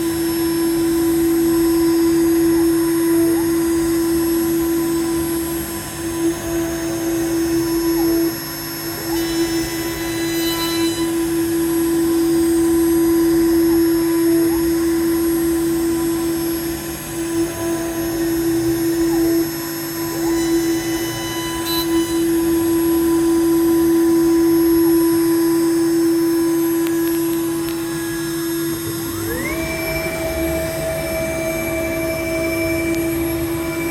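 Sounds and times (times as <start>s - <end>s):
router spindle whine: 0.0s - 33.9s
higher whine: 24.3s - 33.9s.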